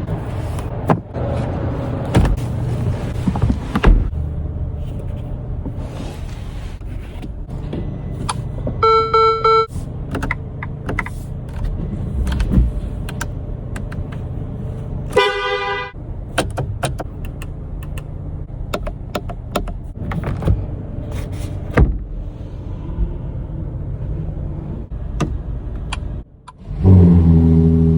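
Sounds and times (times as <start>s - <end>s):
car horn honks: 15.1s - 16.0s.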